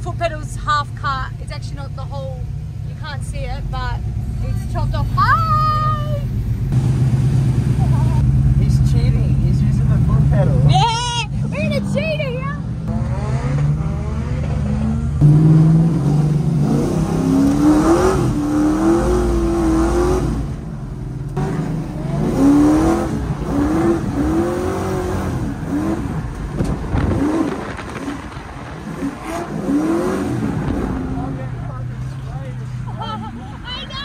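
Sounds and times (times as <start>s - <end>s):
tyre and road noise: 0.0s - 34.0s
car engine revving hard: 6.7s - 20.6s, 21.4s - 32.8s.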